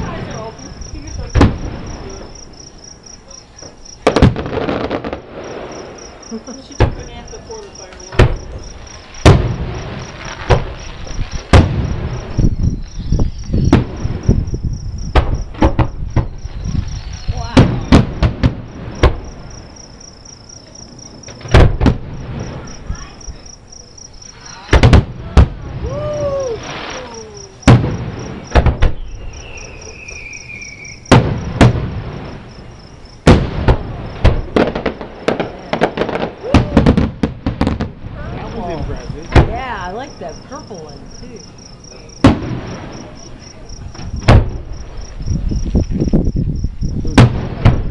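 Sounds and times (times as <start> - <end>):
crickets chirping: 0.0 - 47.9
fireworks bursting with bangs: 0.0 - 47.9
falling firework whistle: 9.1 - 14.5, 25.7 - 32.4, 36.0 - 37.8.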